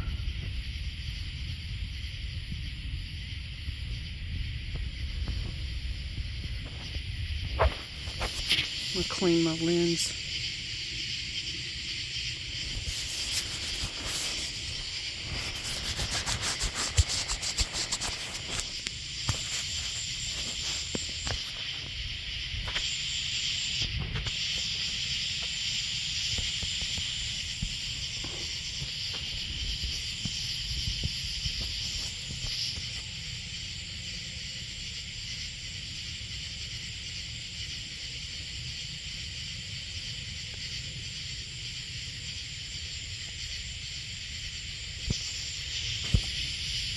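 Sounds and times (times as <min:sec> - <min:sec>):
night insects chorus: 0:00.0 - 0:46.9
scratchy rubbing on microphone: 0:12.6 - 0:21.8.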